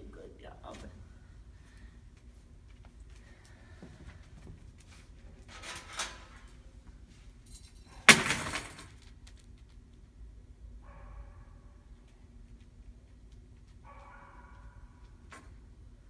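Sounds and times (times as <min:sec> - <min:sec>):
loud metal crash: 0:08.1 - 0:08.9.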